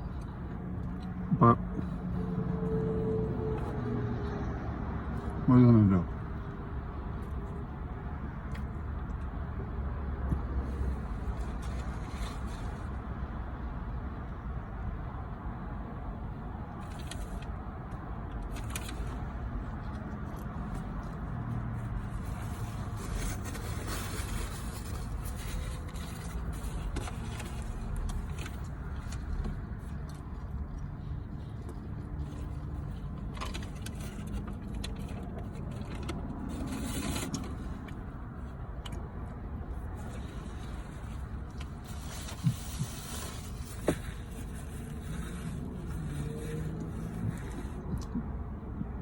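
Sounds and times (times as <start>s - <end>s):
light clicks and rustles: 16.8s - 48.3s.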